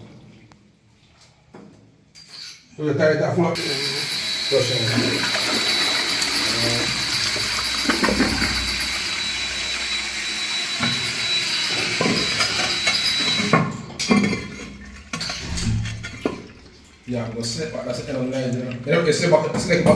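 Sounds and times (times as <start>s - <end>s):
thin high whine: 3.6s - 13.7s
water rushing through a pipe: 3.6s - 19.9s.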